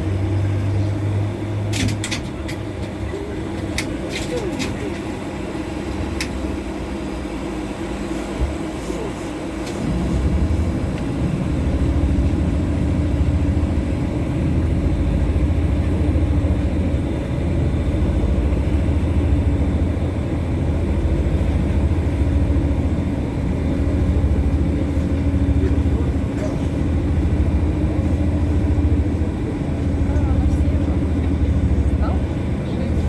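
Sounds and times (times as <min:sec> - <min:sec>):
constant hum: 0:00.0 - 0:33.0
tram wheels rumbling: 0:00.0 - 0:33.0.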